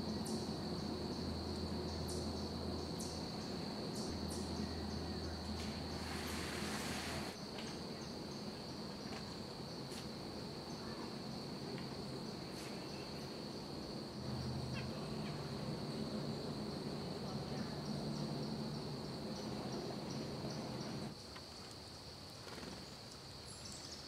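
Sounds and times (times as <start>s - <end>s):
high-pitched insect drone: 12.8s - 21.1s.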